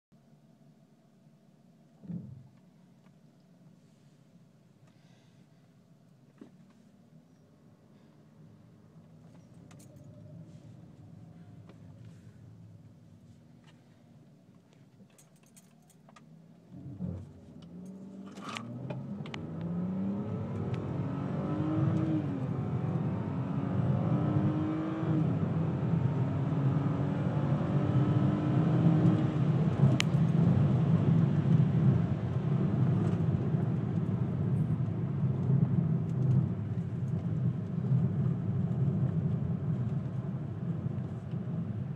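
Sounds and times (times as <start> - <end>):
thump: 2.0 - 2.5
car engine accelerating: 16.6 - 41.9.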